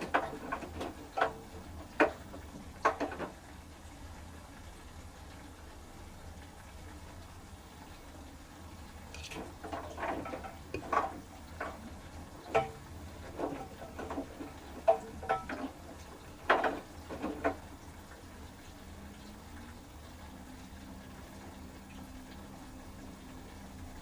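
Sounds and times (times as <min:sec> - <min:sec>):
washing machine drum knocking: 0:00.0 - 0:03.5, 0:09.2 - 0:18.4
low steady hum: 0:00.0 - 0:24.0.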